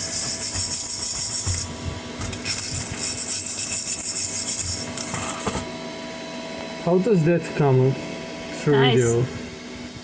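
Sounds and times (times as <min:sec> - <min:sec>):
wire brush scrubbing metal: 0:00.0 - 0:05.4.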